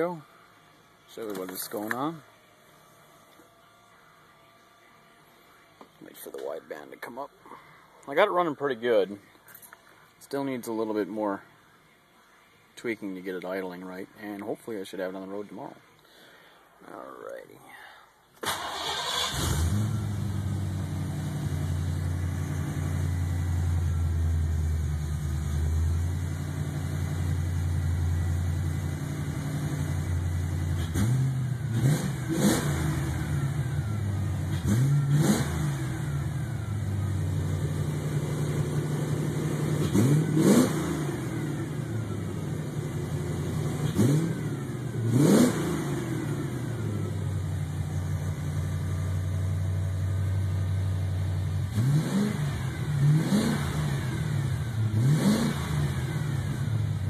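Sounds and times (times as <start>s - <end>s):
engine revving: 18.5s - 50.7s, 51.5s - 57.0s
car engine idling: 18.5s - 57.0s.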